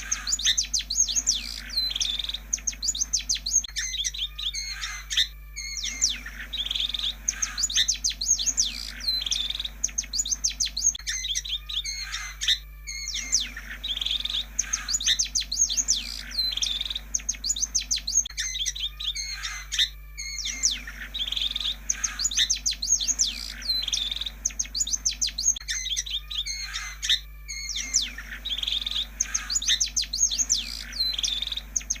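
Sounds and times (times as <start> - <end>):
bird chirps and whistles: 0.0 - 32.0
steady low hum: 0.0 - 32.0.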